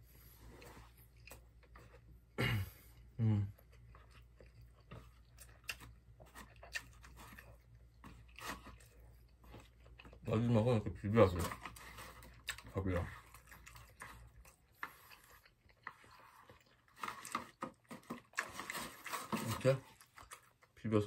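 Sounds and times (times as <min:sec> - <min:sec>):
person chewing food: 0:00.0 - 0:20.8.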